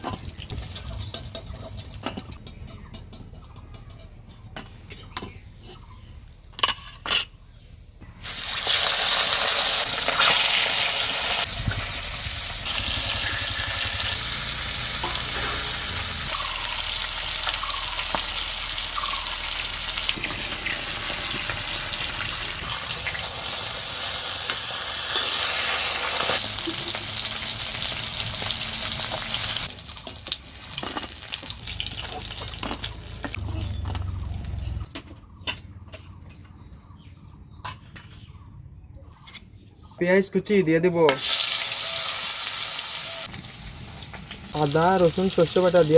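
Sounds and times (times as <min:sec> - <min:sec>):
fish frying in hot oil: 0:08.2 - 0:15.0, 0:15.6 - 0:33.4, 0:41.2 - 0:45.9.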